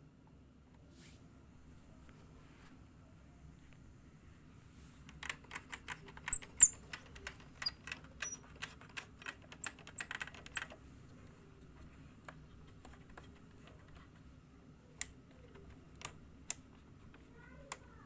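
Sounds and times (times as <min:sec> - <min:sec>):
small tools clicking and tapping: 0:05.1 - 0:10.8.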